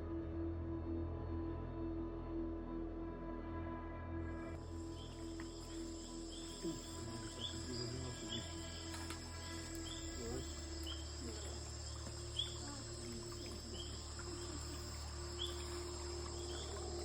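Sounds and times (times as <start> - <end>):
insects trilling: 4.6 - 17.0
low steady hum: 4.6 - 17.0
short insect chirp: 4.6 - 17.0.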